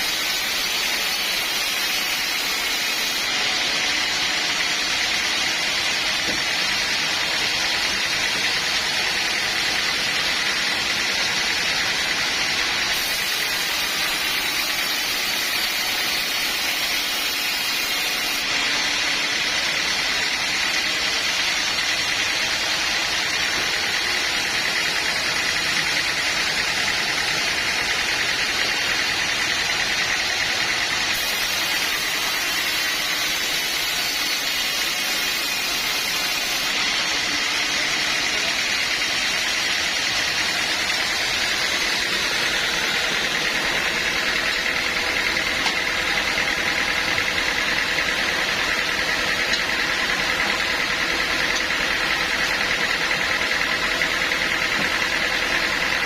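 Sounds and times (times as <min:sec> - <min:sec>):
sawmill machinery running: 0:00.0 - 0:56.0.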